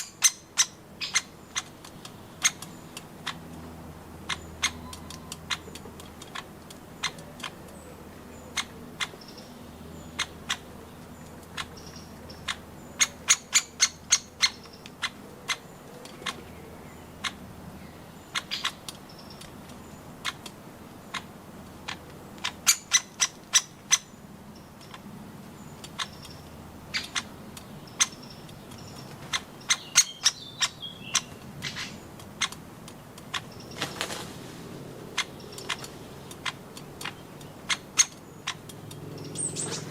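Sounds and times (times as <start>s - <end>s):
woodpecker knocking: 0.0s - 17.5s, 18.2s - 34.2s, 35.0s - 39.9s
faint bird chirps: 4.3s - 5.8s.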